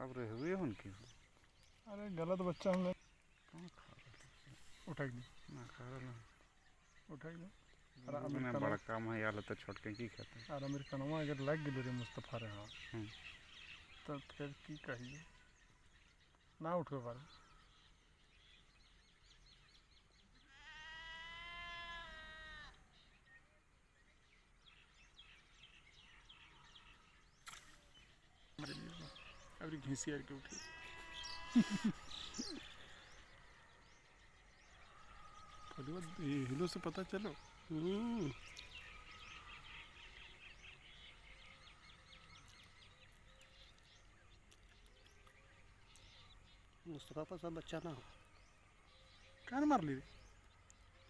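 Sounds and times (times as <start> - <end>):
outdoor background noise: 0.0 - 51.0
small birds chirping faintly: 0.0 - 51.0
goat bleating: 20.5 - 22.8, 30.5 - 33.0.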